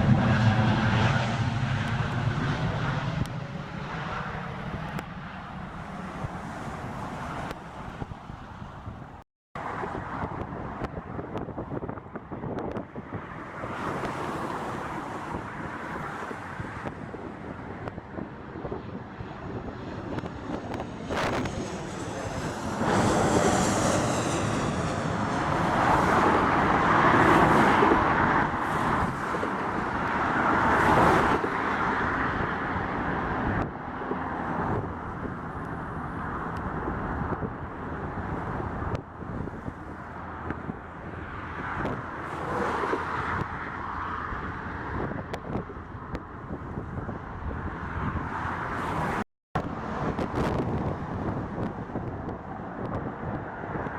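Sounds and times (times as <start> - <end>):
jet engine roar: 0.0 - 10.4, 13.6 - 43.6.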